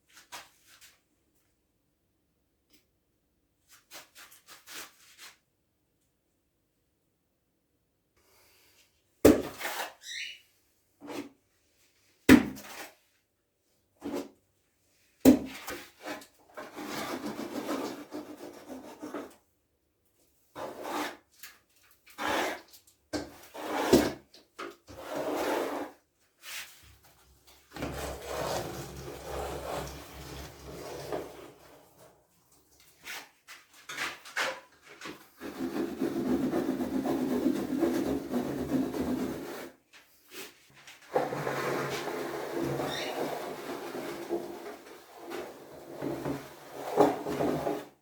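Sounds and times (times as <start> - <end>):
scraping and rubbing surfaces: 24.9 - 39.7, 41.1 - 48.0.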